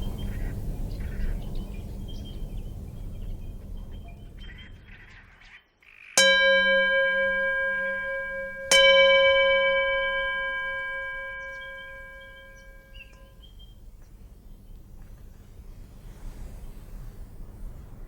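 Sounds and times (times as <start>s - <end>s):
meditation bell ringing: 6.2s - 13.4s.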